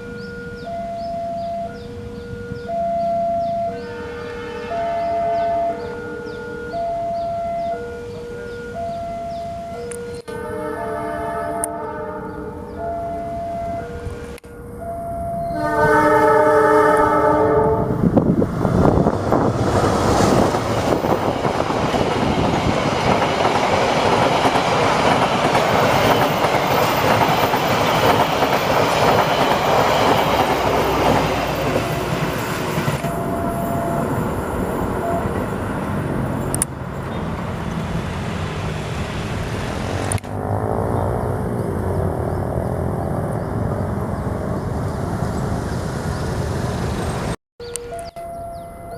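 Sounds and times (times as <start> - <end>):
train horn chord: 0.1 - 18.2, 33.0 - 35.6
train wheels clattering on rails: 18.5 - 38.1.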